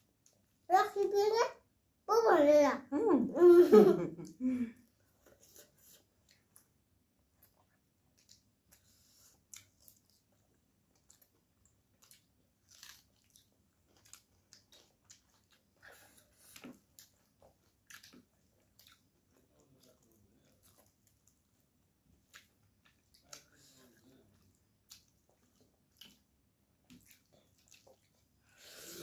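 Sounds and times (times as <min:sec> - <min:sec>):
people chewing and lip-smacking: 0:04.2 - 0:28.5.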